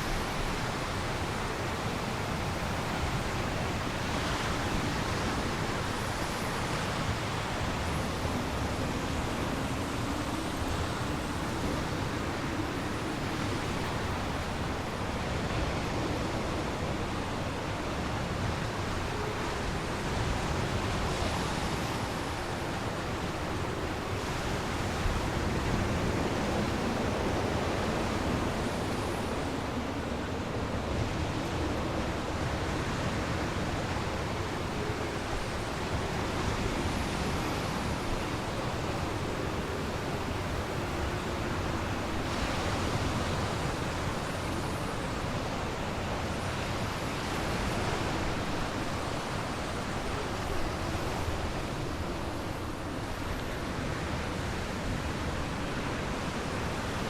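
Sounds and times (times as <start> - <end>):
strong wind: 0.0 - 57.0.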